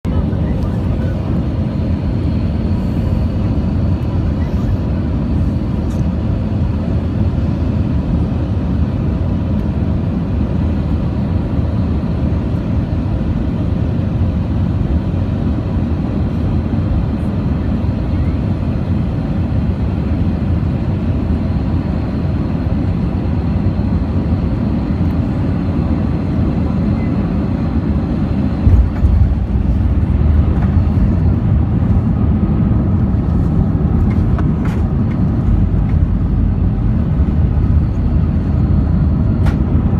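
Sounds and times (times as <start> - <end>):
engine and airflow rumble: 0.0 - 39.9
runway rollout rumble: 27.9 - 39.9.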